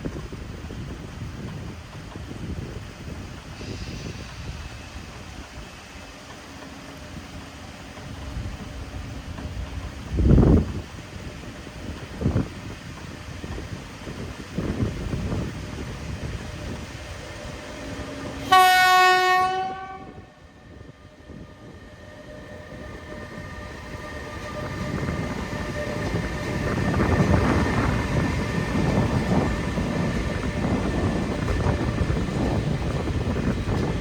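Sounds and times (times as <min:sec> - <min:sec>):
freight train rumble and wheel clatter: 0:00.0 - 0:34.0
locomotive horn blast: 0:18.4 - 0:20.4.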